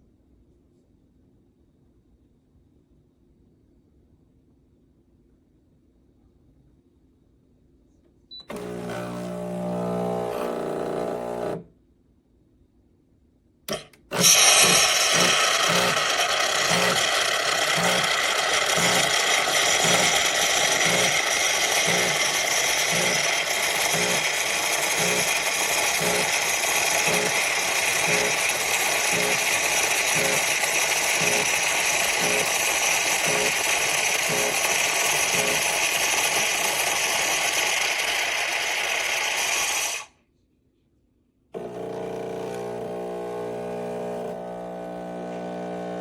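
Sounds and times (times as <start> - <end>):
machine running with low pulse: 8.5 - 11.6, 14.6 - 37.6, 41.6 - 46.0.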